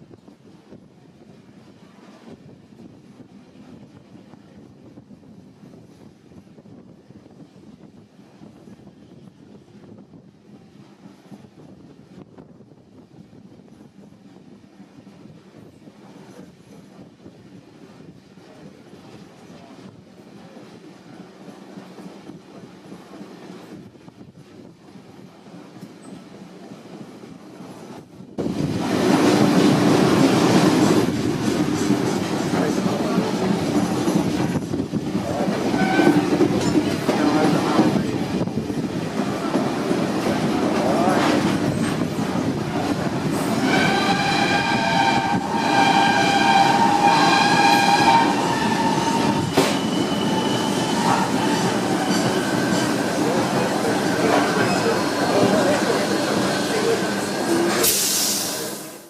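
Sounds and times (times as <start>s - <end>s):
steam train running: 0.0s - 59.0s
steam whistle blasts: 43.6s - 51.3s.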